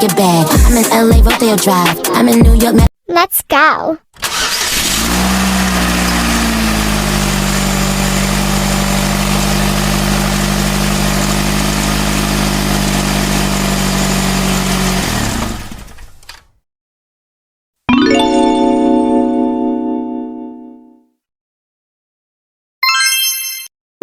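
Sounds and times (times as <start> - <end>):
engine running and winding down: 4.2 - 16.4.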